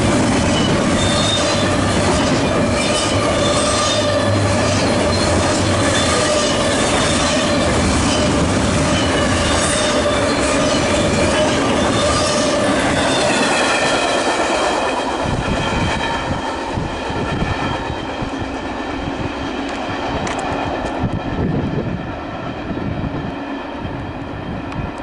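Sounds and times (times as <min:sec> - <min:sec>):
train wheels clacking on rails: 0:00.0 - 0:21.4
high wheel squeal: 0:00.4 - 0:14.4.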